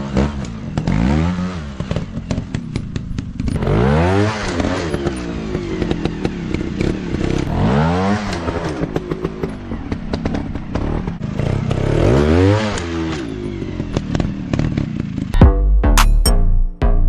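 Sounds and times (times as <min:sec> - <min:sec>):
dirt bike engine revving: 0:00.0 - 0:15.4.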